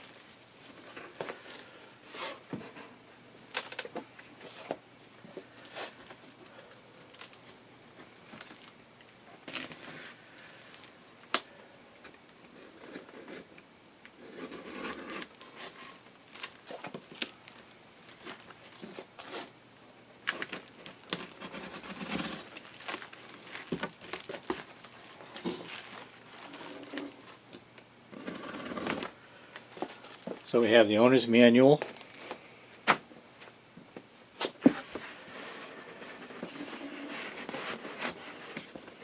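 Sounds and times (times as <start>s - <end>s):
cardboard and plastic crinkling: 8.2s - 8.8s, 20.2s - 30.6s, 31.8s - 33.0s.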